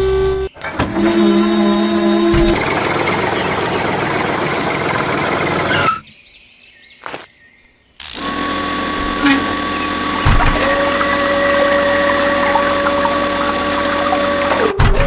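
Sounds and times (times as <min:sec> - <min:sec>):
motor thin whine: 0:08.0 - 0:14.8
small electric motors whirring: 0:08.0 - 0:14.8.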